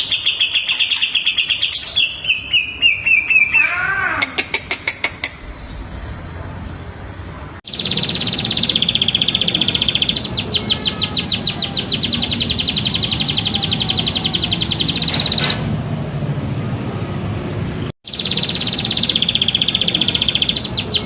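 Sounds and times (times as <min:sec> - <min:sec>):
songbird trilling: 0:07.7 - 0:15.6, 0:18.1 - 0:21.0.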